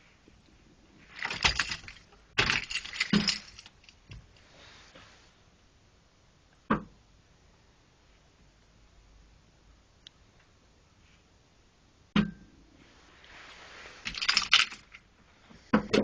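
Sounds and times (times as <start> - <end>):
jingling clattering handling: 1.1 - 4.3, 14.0 - 15.1.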